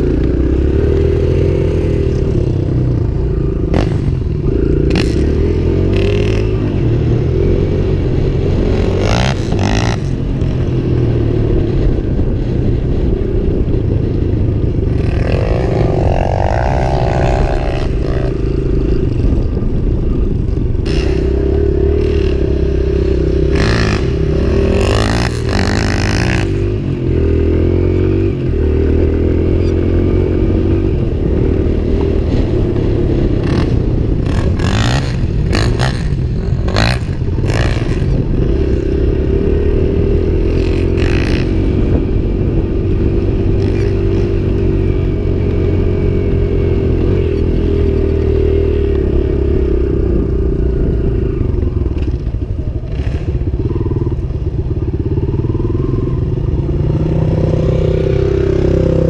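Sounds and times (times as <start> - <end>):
dirt bike engine revving: 0.0 - 10.7, 14.8 - 19.4, 20.8 - 52.1.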